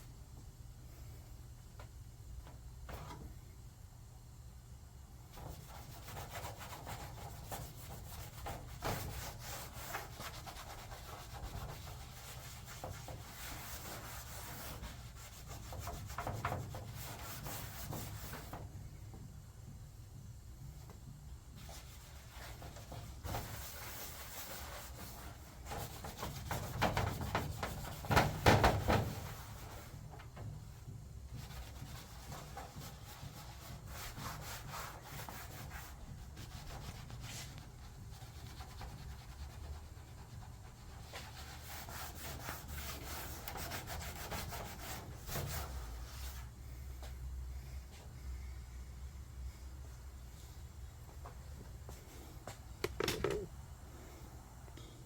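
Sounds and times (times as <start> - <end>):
hand rubbing on metal panel: 5.3 - 18.7, 21.5 - 30.4, 31.3 - 46.5.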